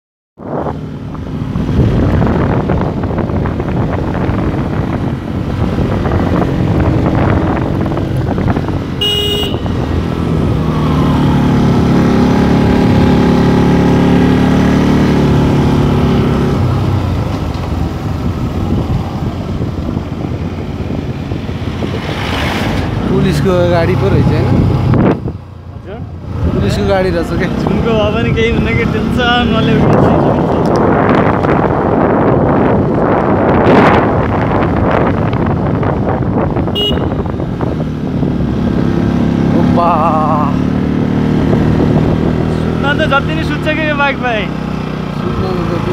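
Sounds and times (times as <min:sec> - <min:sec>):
road noise: 0:00.4 - 0:45.9
motorcycle engine running: 0:00.8 - 0:21.9, 0:23.9 - 0:45.9
short horn beep: 0:09.0 - 0:09.7, 0:36.8 - 0:37.2.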